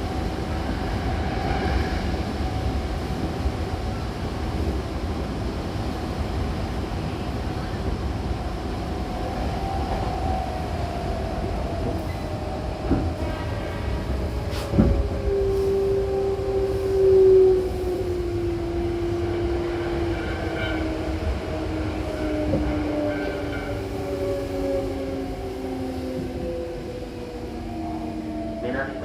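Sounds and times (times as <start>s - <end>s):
train wheel rumble: 0.0s - 29.0s.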